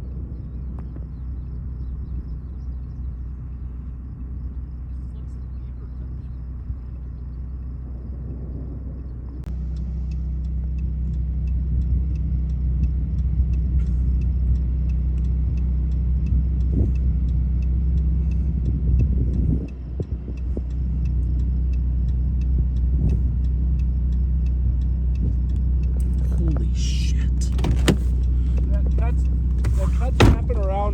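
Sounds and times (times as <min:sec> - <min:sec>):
car engine and cabin rumble: 0:00.0 - 0:30.9
turn signal ticking: 0:00.0 - 0:30.9.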